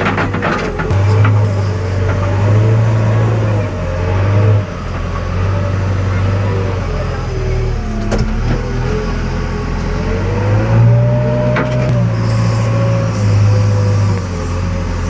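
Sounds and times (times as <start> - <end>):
diesel engine running under load: 0.0 - 15.0
hydraulic whine: 0.5 - 15.0.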